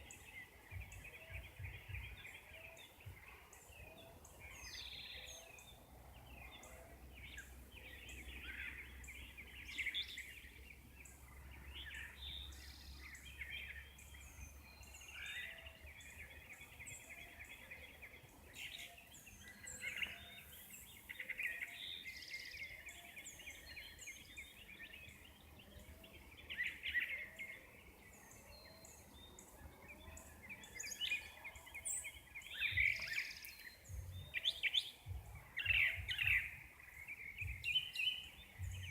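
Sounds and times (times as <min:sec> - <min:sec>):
birds singing and chirping: 0:00.0 - 0:38.9
soft low repeating bird note: 0:33.8 - 0:38.9.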